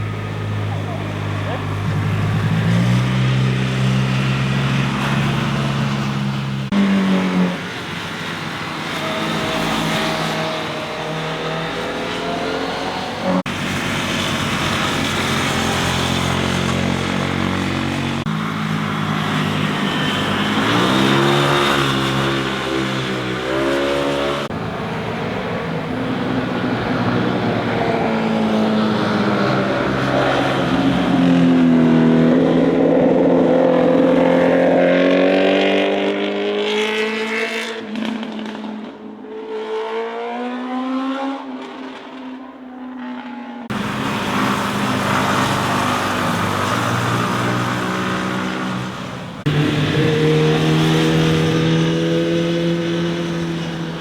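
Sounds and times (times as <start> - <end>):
motorcycles revving past: 1.4 - 24.5, 42.9 - 54.0.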